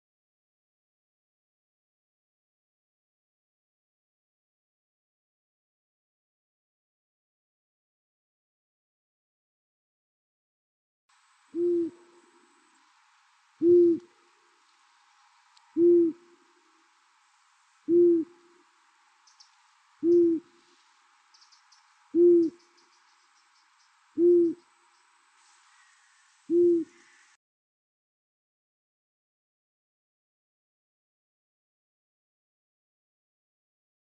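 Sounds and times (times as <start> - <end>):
owl hooting: 11.5 - 12.6, 13.6 - 14.2, 15.7 - 16.8, 17.8 - 18.6, 19.2 - 24.7, 25.6 - 27.4.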